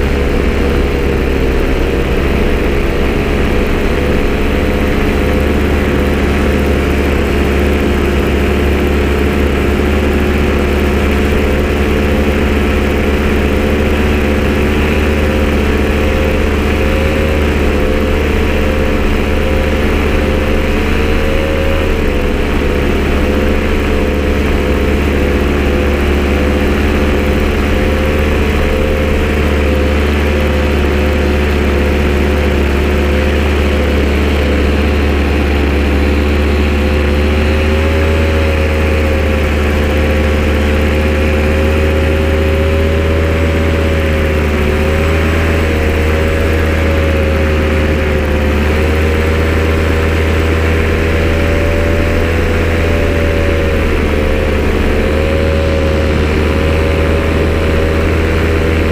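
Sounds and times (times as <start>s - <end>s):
engine idling: 0.0s - 58.9s.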